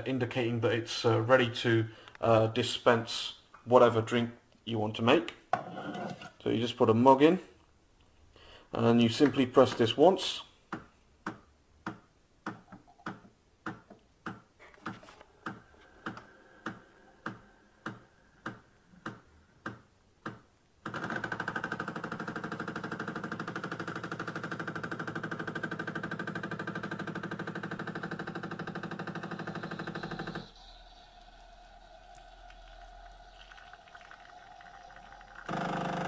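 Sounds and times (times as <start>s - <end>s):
pump buzzing: 20.9s - 36.0s.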